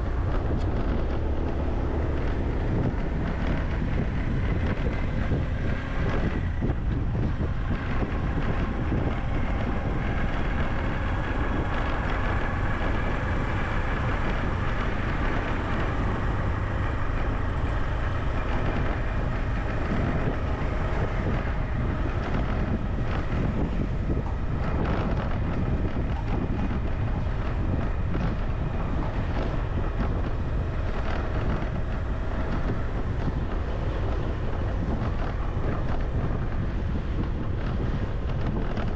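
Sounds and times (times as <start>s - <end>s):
steady low rumble: 0.0s - 38.9s
wind buffeting microphone: 0.0s - 38.9s.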